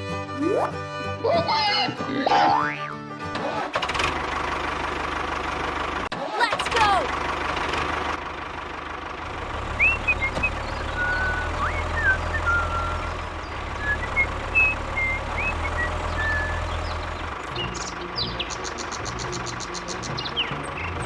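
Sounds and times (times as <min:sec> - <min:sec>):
birds chirping: 0:09.3 - 0:21.0.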